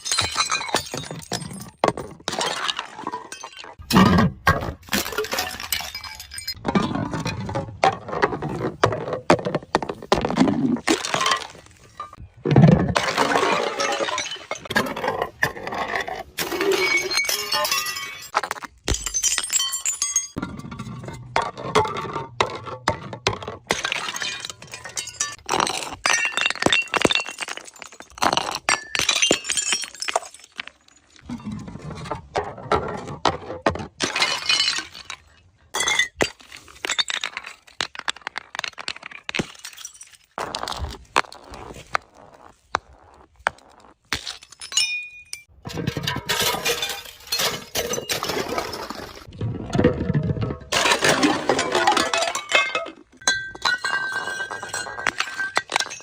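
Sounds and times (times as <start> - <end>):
glass bottles shattering: 0.0 - 7.4, 10.8 - 12.2, 12.9 - 15.2, 16.4 - 20.7, 23.7 - 31.5, 34.0 - 41.3, 43.7 - 49.3, 50.1 - 56.0.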